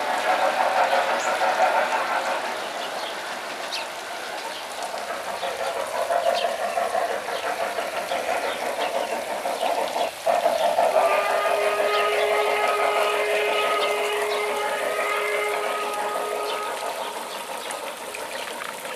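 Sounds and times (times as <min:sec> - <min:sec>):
model train motor hum: 0:00.0 - 0:18.9
wheels clicking over rail joints: 0:00.0 - 0:18.9.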